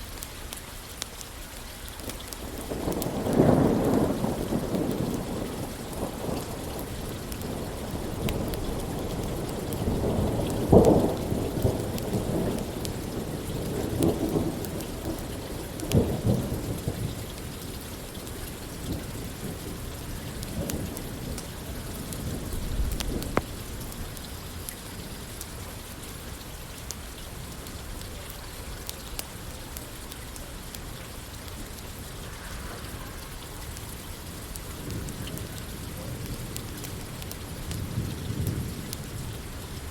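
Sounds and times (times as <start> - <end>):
steady rain: 0.0 - 39.9
rolling thunder: 2.5 - 24.2
faint sharp clicks: 22.8 - 24.8.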